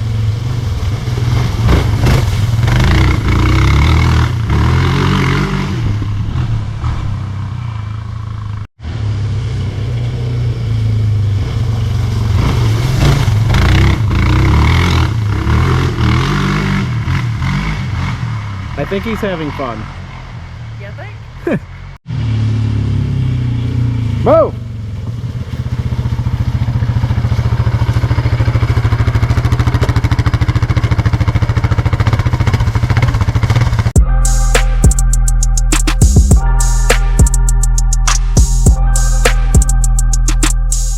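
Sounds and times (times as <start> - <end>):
quad bike engine running: 0.0 - 34.5
music with drum beat: 34.0 - 40.9.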